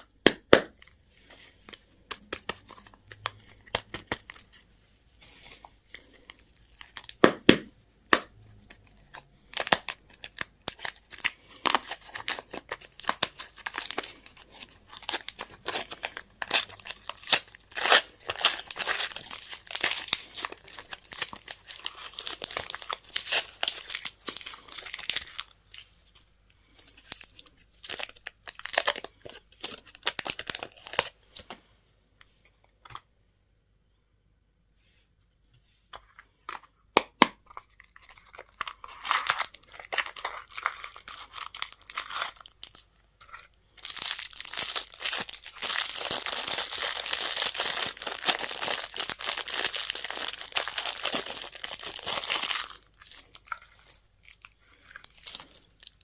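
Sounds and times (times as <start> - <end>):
wrappers crinkling and tearing: 8.4 - 31.5, 37.6 - 56.0.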